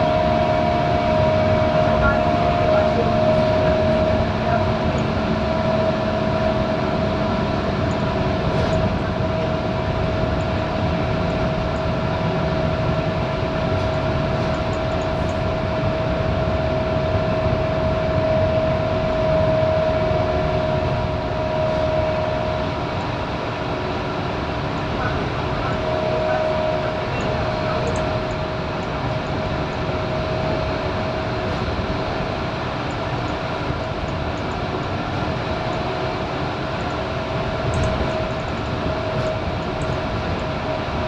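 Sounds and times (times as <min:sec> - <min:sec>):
bus diesel engine running: 0:00.0 - 0:41.0
drivetrain whine: 0:00.0 - 0:41.0.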